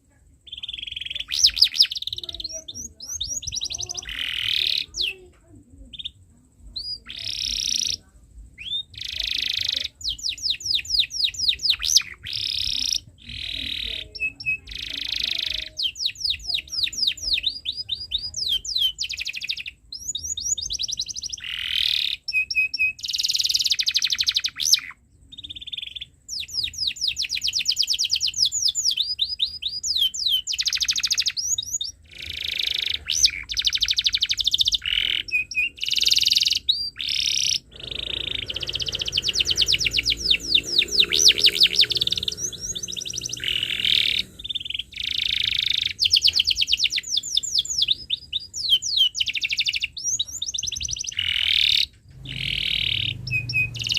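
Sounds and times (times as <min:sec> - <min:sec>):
canary singing trills: 0:00.0 - 0:53.9.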